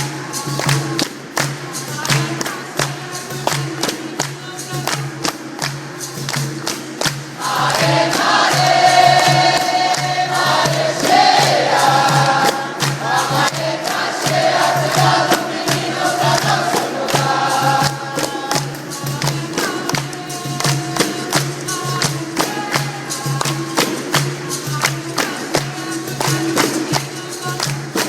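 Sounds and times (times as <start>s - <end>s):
percussion rhythm of sharp taps: 0.0s - 28.0s
group singing a chorus: 7.0s - 28.0s.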